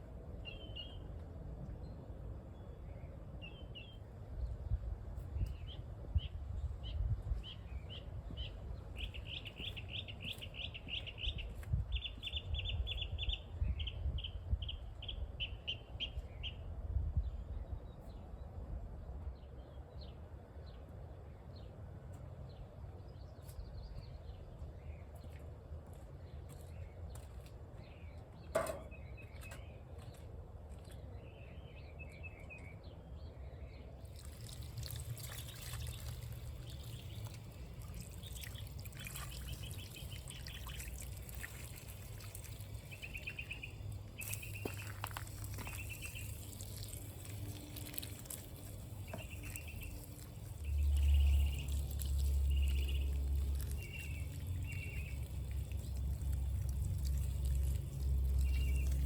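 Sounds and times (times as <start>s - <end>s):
small birds chirping: 5.2s - 18.2s, 22.5s - 59.0s
water pouring and trickling: 34.0s - 59.0s.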